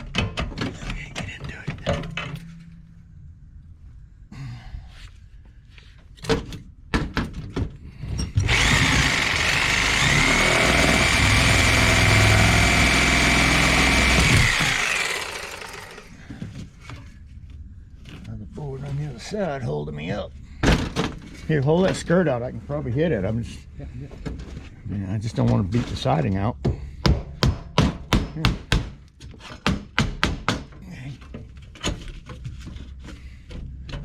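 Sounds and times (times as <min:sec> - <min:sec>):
power tool whining: 0:08.4 - 0:16.5.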